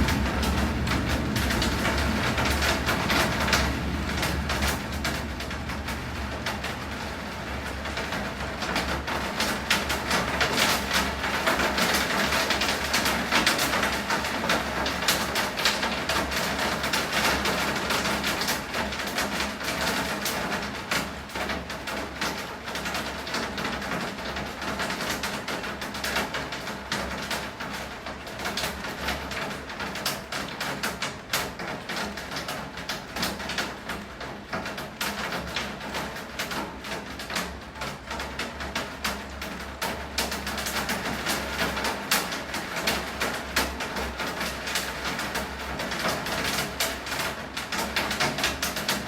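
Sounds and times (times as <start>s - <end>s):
low hum: 0.0s - 7.0s
rain hissing: 0.0s - 7.9s
steady low rumble: 0.0s - 8.6s
heavy rain pouring: 0.0s - 49.0s.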